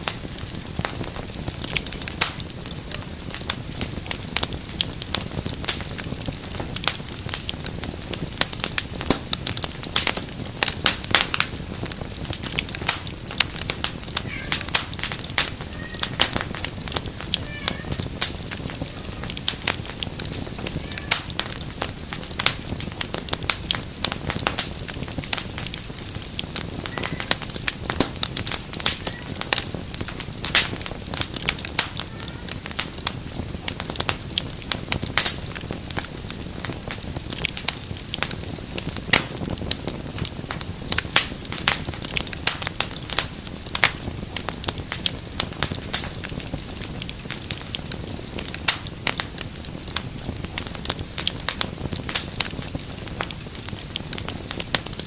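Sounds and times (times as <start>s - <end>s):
low rush of flames: 0.0s - 55.0s
wood fire crackling and popping: 0.0s - 55.0s.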